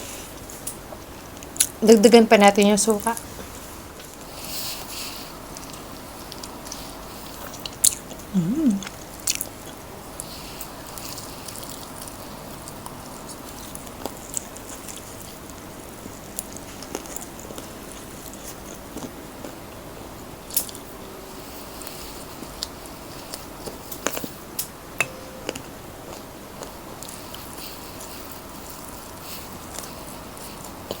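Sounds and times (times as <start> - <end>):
chewing: 3.2 - 19.6.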